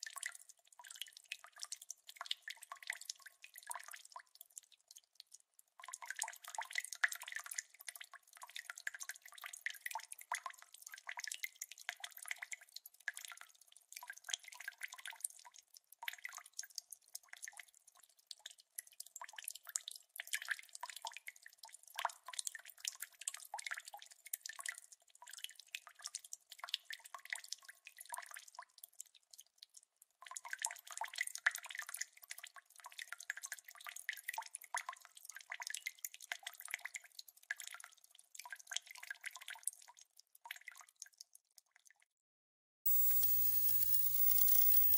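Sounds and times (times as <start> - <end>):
water dripping: 42.9 - 44.9.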